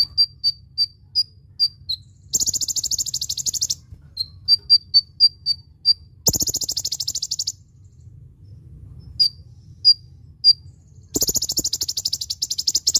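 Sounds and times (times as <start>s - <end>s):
bird high sharp chips: 0.0s - 7.6s, 11.1s - 12.9s
bird buzzy trill: 0.0s - 8.0s, 9.1s - 12.9s.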